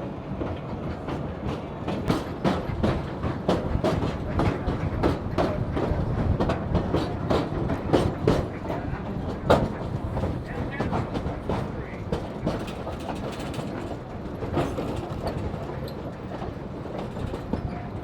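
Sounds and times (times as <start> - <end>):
railway car rumbling: 0.0 - 18.0.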